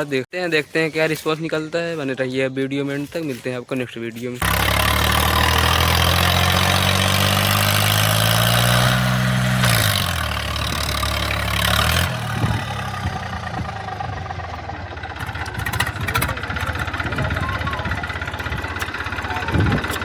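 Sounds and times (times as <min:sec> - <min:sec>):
tractor diesel engine running: 0:04.4 - 0:20.0.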